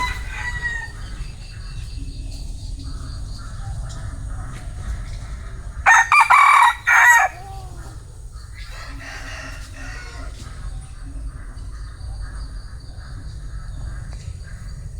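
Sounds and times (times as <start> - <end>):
rooster crowing: 0.0 - 1.3, 5.8 - 10.7.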